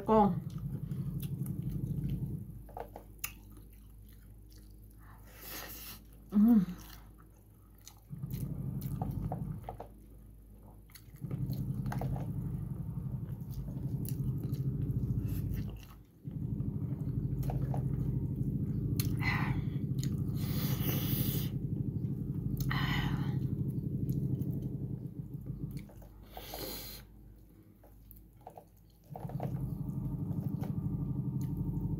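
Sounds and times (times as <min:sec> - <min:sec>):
wet chewing: 0:00.4 - 0:24.7.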